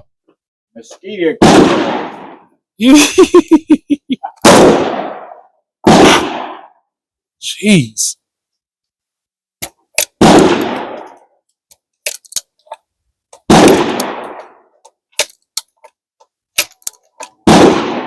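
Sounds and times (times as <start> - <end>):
gunshots with echo: 1.3 - 2.5, 4.4 - 6.8, 10.2 - 11.2, 13.5 - 14.7, 17.4 - 18.0.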